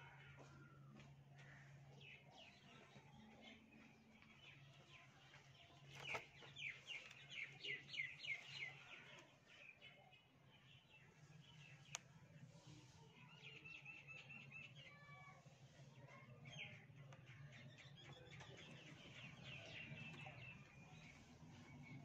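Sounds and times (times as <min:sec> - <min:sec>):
bird chirping: 0:01.4 - 0:12.4, 0:16.1 - 0:22.0.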